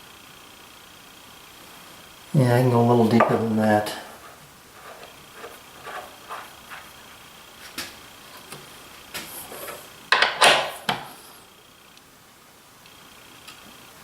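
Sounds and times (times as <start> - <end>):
scraping and rubbing: 3.0 - 8.6, 9.2 - 10.0.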